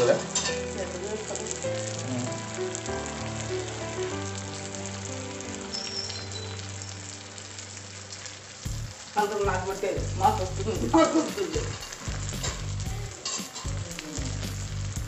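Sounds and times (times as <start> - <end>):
food sizzling in oil: 0.0 - 15.0
stirring in a pan: 8.6 - 15.0.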